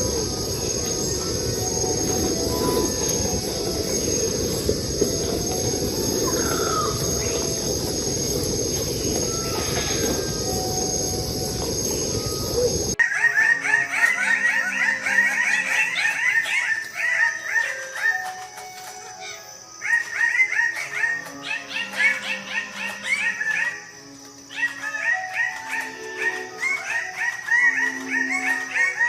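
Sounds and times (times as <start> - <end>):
steady rushing noise: 0.0 - 13.0
birds chattering calls: 0.0 - 29.0.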